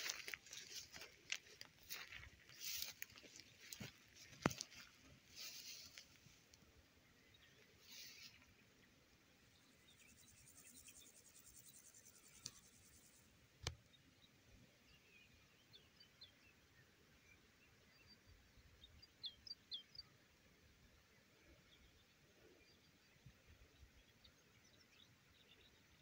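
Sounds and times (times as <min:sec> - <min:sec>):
faint bird chirps: 0:07.1 - 0:08.7, 0:13.8 - 0:20.2.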